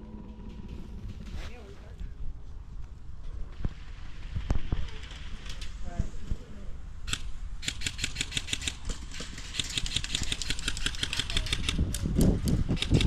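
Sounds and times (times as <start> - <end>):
airsoft guns firing full auto: 7.1 - 11.8.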